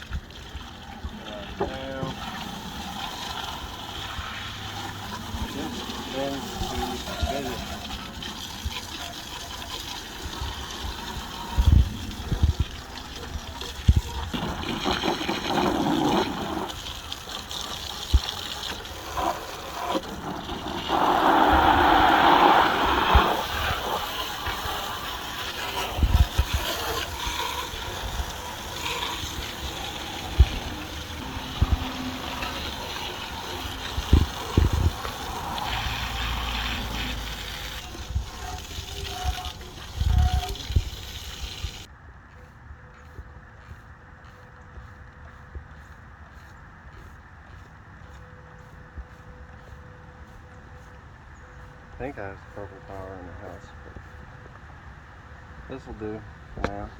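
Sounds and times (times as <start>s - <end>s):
water spraying and splashing: 0.0s - 41.9s.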